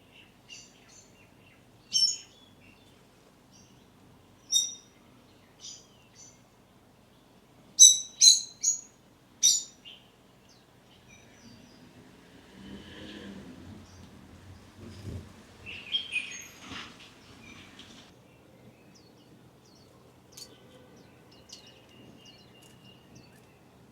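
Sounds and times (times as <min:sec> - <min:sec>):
birds chirping high: 0:00.0 - 0:12.1, 0:13.6 - 0:23.9
soft low rustle: 0:11.2 - 0:18.1.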